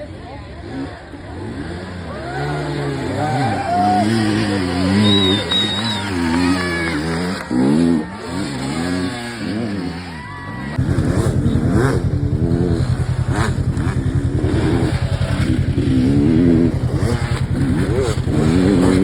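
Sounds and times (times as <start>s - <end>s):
dirt bike engines revving: 0.0s - 19.0s
deep pulsing engine note: 10.8s - 19.0s.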